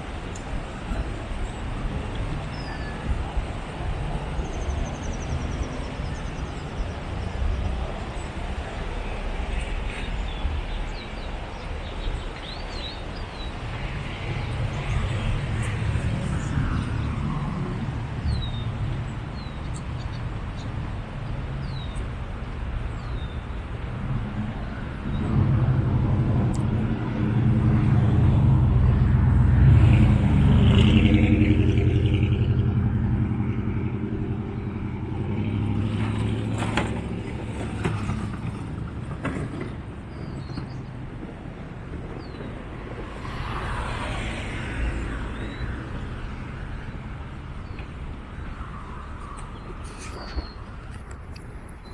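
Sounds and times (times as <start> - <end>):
vehicle engine passing by: 24.0 - 38.9, 42.2 - 50.6.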